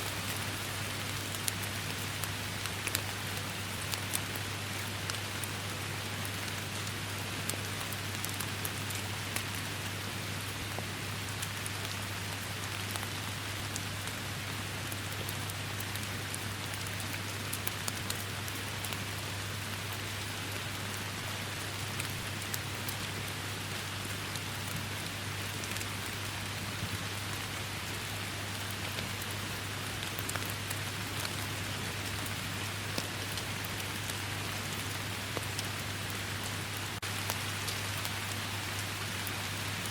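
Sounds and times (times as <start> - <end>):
raindrops ticking on surfaces: 0.0 - 39.9.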